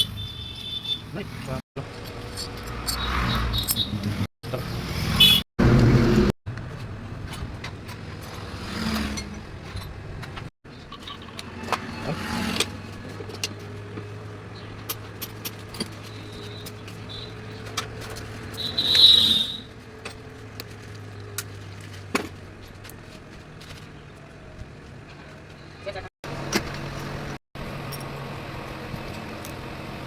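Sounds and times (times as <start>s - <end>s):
metal tools clinking: 1.8s - 4.0s, 10.7s - 14.1s.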